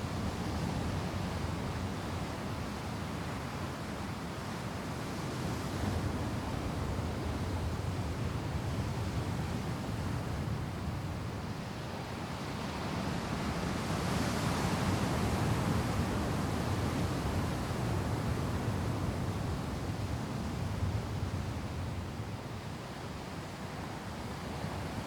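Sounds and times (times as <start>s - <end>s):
ocean surf washing ashore: 0.0s - 25.0s.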